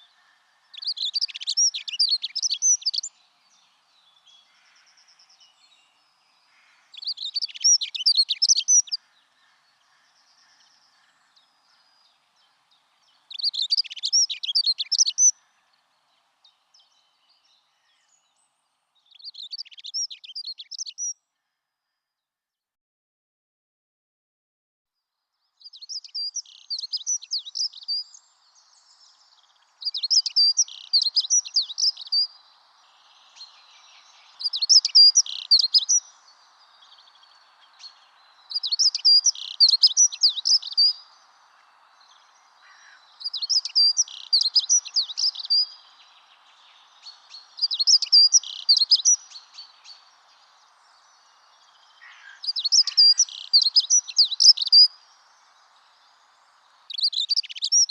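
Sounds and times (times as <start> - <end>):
songbird trilling: 0.0 - 5.8, 6.5 - 9.1, 13.3 - 15.5, 25.7 - 55.1, 56.9 - 57.9.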